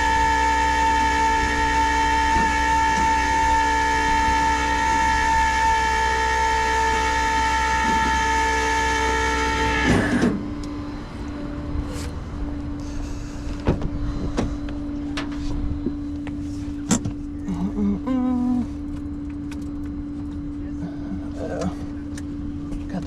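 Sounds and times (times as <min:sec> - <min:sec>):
loading gear motor whining: 0:00.0 - 0:12.2
steady hum: 0:00.0 - 0:23.0.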